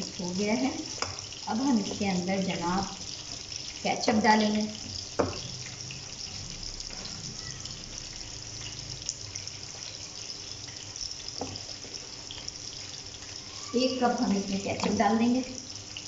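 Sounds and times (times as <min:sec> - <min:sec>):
vegetables sizzling in oil: 0:00.0 - 0:16.0
spatula tapping wok: 0:01.0 - 0:02.0, 0:05.1 - 0:05.5.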